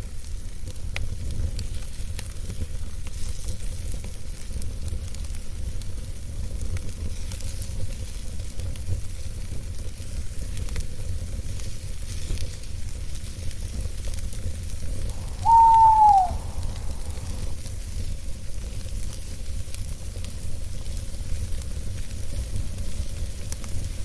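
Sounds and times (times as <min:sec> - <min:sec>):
campfire crackling: 0:06.5 - 0:24.0
owl hoot: 0:15.1 - 0:17.6
low rumble: 0:16.3 - 0:17.6.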